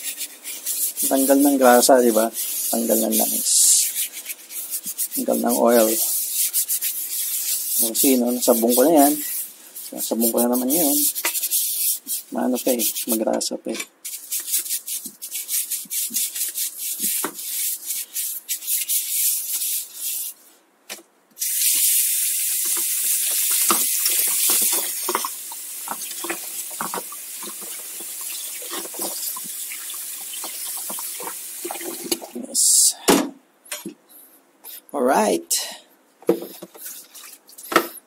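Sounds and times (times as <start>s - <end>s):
water running: 0.0s - 13.3s, 21.7s - 32.8s
brush scrubbing bike parts: 0.0s - 20.5s, 21.4s - 32.8s, 36.4s - 38.0s.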